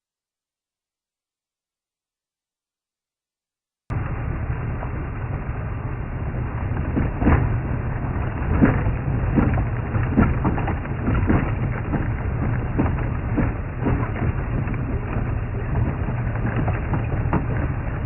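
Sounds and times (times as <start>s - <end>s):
vehicle engine and road rumble: 3.9s - 18.0s
knocks and rattles: 6.6s - 18.0s.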